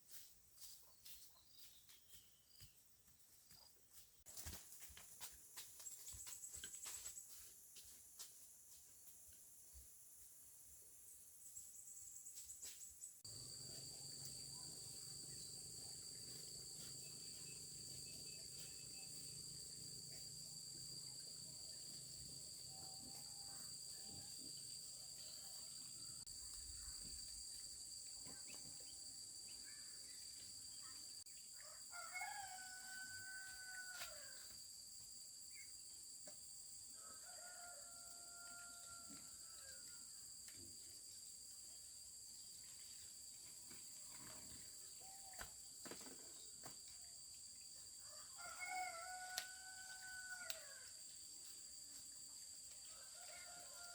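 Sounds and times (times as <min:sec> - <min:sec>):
insects droning: 0:04.3 - 0:53.9
faint rooster crowing: 0:22.6 - 0:26.2, 0:31.5 - 0:34.6, 0:36.9 - 0:40.2, 0:48.0 - 0:51.0, 0:52.8 - 0:53.9.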